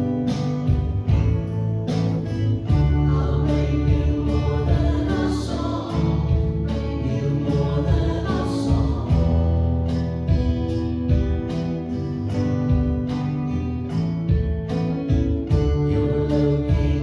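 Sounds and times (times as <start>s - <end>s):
strummed acoustic guitar: 0.0s - 17.0s
person singing: 2.7s - 10.4s, 15.7s - 17.0s.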